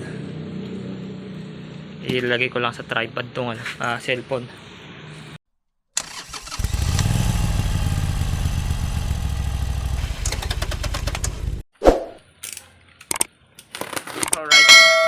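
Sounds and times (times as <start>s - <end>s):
engine starting and idling: 6.0s - 11.6s.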